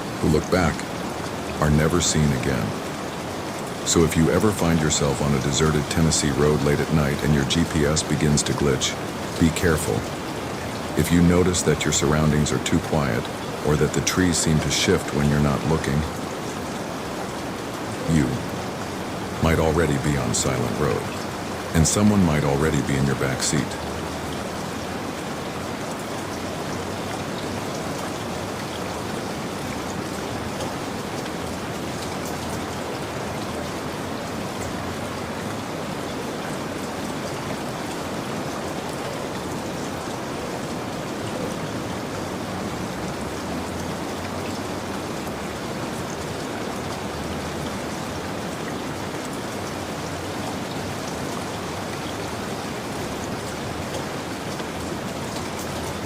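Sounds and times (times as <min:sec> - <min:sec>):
steady rain patter: 0:00.0 - 0:56.0.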